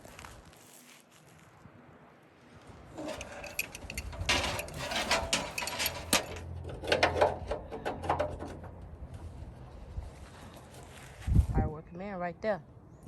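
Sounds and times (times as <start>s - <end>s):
metal clanks: 3.0s - 9.3s.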